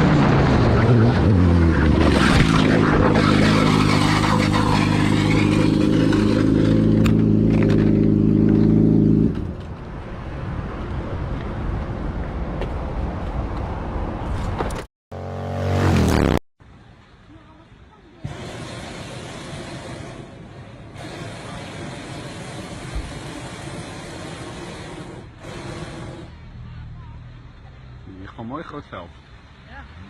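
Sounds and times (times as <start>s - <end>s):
vehicle engine droning: 0.0s - 10.1s.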